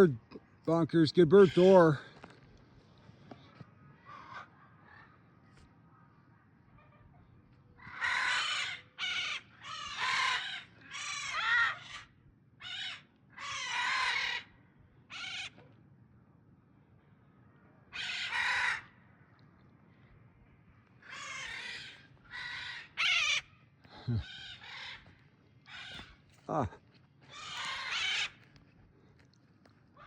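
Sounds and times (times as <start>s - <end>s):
macaws squawking: 1.2s - 2.0s, 7.8s - 14.5s, 15.1s - 15.6s, 18.0s - 18.9s, 21.0s - 26.6s, 27.2s - 28.5s.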